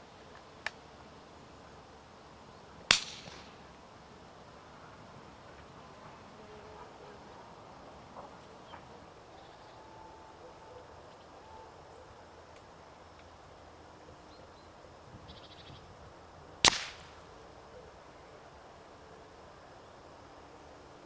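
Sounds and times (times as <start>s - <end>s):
distant bird calls: 14.2s - 15.9s.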